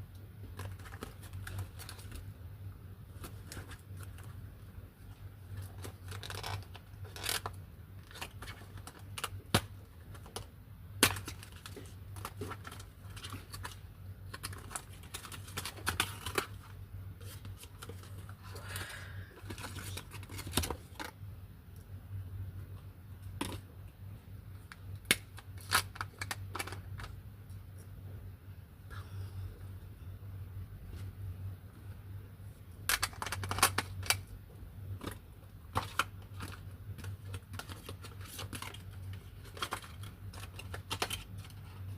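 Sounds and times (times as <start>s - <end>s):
packaging rustling and tearing: 0.4s - 2.3s, 5.5s - 21.2s, 24.7s - 27.2s, 32.8s - 34.3s, 35.0s - 41.9s.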